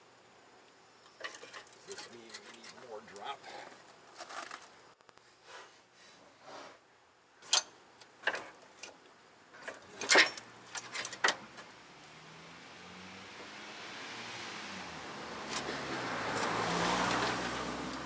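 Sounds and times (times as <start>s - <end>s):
car approaching: 10.4s - 18.0s.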